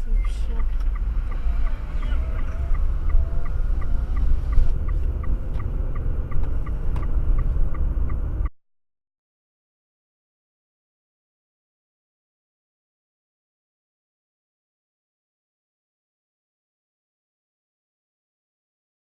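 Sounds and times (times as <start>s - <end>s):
high regular ticking: 0.0s - 8.3s
car road and engine rumble: 0.0s - 8.5s.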